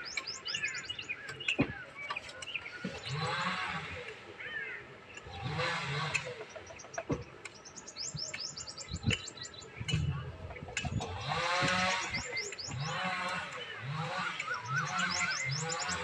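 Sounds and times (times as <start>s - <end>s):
birds chirping: 0.0s - 16.0s
loud pitched calls: 10.9s - 16.0s.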